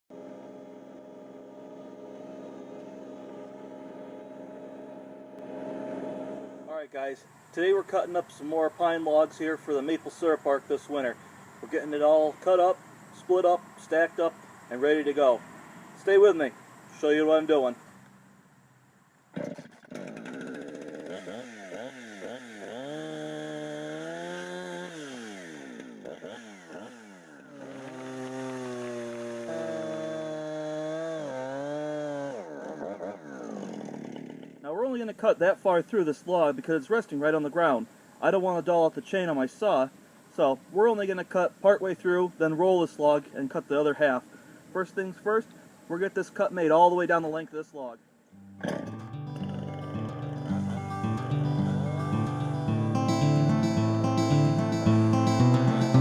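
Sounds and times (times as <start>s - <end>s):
chainsaw revving: 0.1s - 18.2s, 19.4s - 34.7s, 48.6s - 56.0s.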